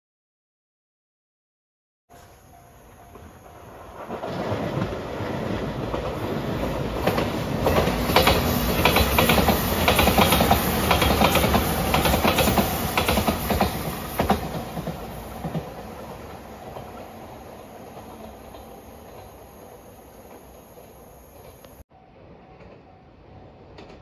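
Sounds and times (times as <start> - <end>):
electric train passing at speed: 2.1 - 24.0
wheels clacking over rail joints: 3.0 - 21.8.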